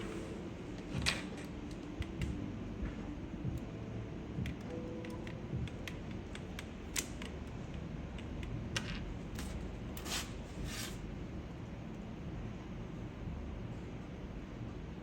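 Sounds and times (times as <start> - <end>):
keyboard clicks: 4.4 - 8.6.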